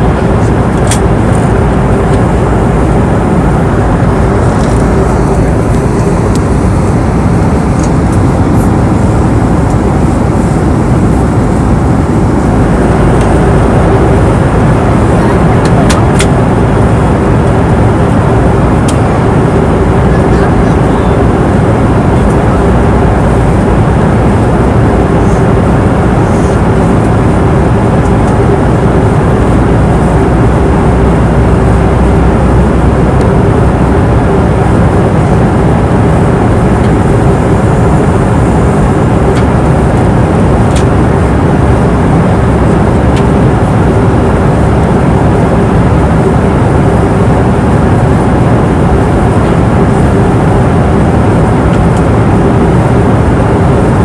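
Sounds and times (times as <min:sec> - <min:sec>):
airliner cabin roar: 0:00.0 - 0:54.0
steady hum: 0:00.0 - 0:54.0.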